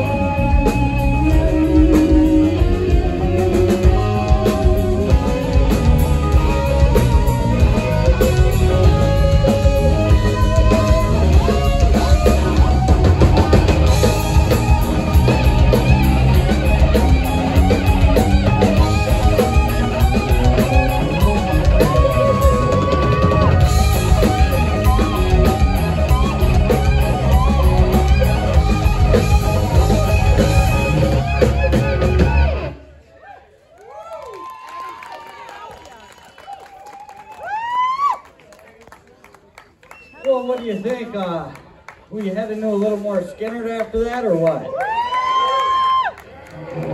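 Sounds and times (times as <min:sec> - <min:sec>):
live rock band playing: 0:00.0 - 0:32.9.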